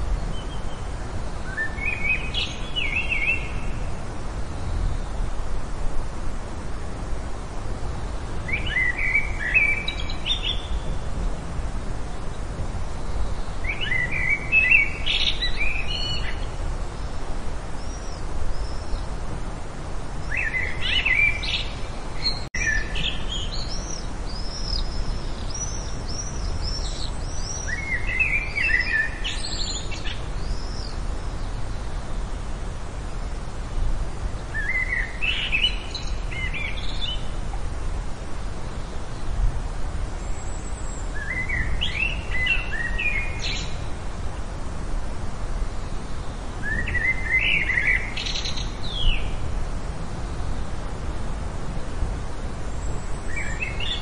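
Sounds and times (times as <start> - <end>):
background hiss: 0.0 - 54.0.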